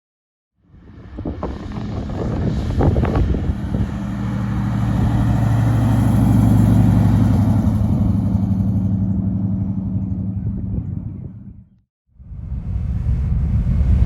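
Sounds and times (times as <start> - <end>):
car engine running: 0.8 - 11.8.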